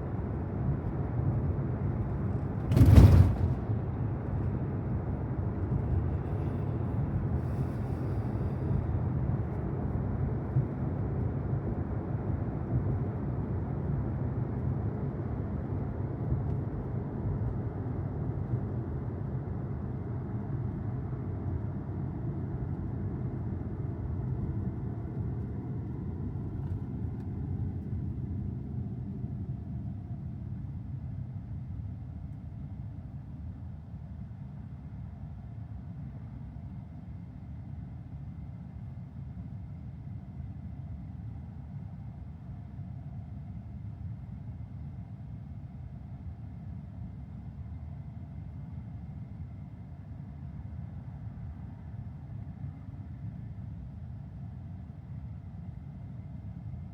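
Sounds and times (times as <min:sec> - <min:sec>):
car road and tyre noise: 0:00.0 - 0:10.3.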